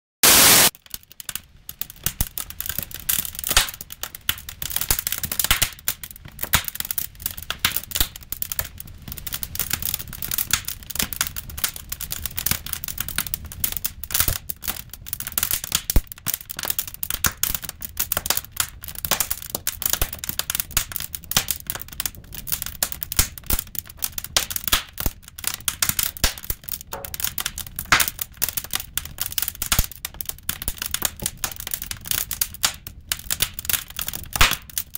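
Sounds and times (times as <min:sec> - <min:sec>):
hiss of flames: 0:00.2 - 0:00.7
firewood crackling and popping: 0:00.2 - 0:34.9.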